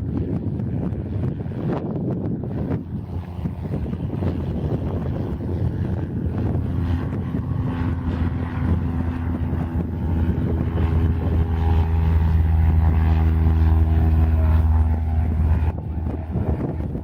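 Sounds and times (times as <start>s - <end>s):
propeller airplane engine droning: 0.0s - 17.0s.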